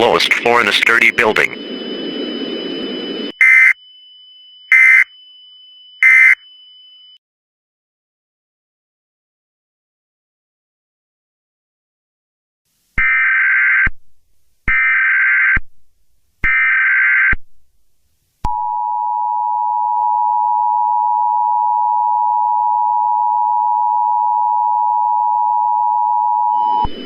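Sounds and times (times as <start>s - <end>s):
data bursts: 0.0s - 3.8s, 4.7s - 5.1s, 6.0s - 6.4s
two-tone attention signal: 0.0s - 3.9s, 4.6s - 5.1s, 6.0s - 6.5s.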